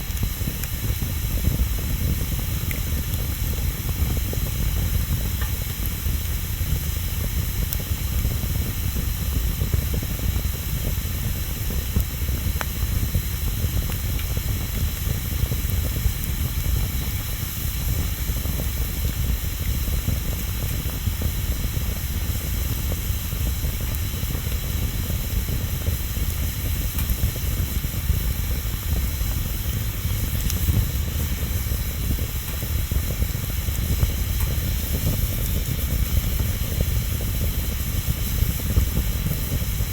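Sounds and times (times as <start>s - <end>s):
bonfire hissing and rumbling: 0.0s - 39.9s
faint fire crackle: 0.0s - 39.9s.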